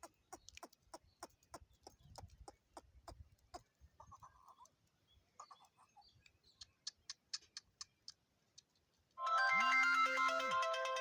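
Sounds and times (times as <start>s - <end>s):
electronic beeping melody: 9.2s - 11.0s.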